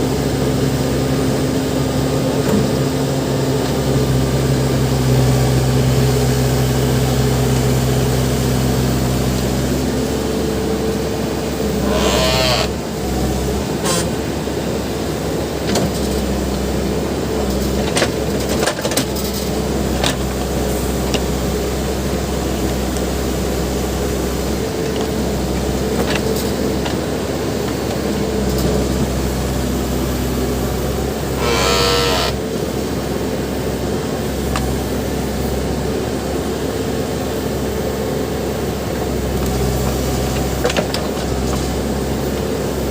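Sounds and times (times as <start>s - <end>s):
diesel engine under hydraulic load: 0.0s - 42.9s
high-pitched whine: 31.3s - 32.5s
brief squeal: 31.4s - 32.4s.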